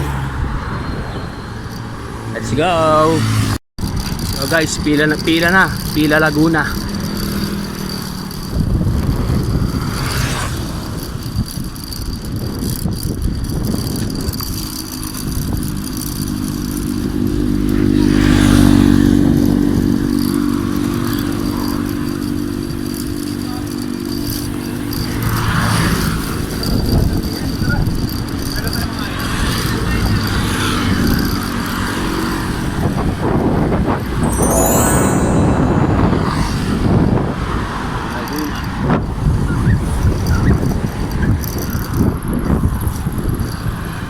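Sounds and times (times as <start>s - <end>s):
passing motor vehicles: 0.0s - 34.3s, 35.5s - 44.0s
wind rumble on microphone: 8.3s - 16.4s, 38.7s - 44.0s.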